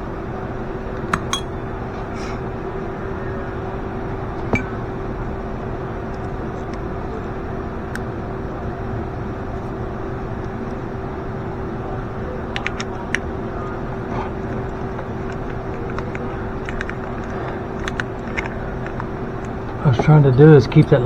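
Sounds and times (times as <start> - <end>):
steady mechanical hum: 0.0 - 21.0
light clicks and clinks: 1.2 - 1.7.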